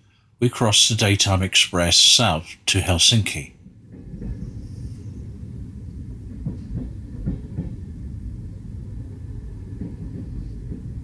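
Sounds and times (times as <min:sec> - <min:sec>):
train rumbling on track: 0:05.5 - 0:11.0.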